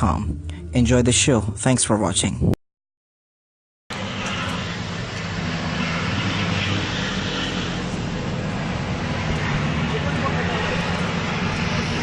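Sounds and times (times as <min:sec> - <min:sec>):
diesel truck engines droning: 0:03.9 - 0:12.0.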